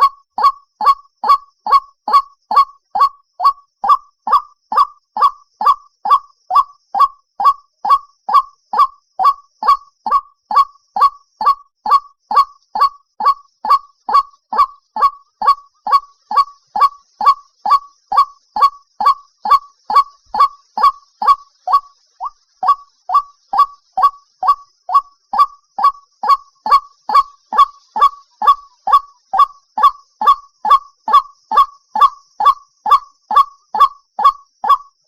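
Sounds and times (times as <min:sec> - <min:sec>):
waterhen honking call: 0:00.0 - 0:34.8.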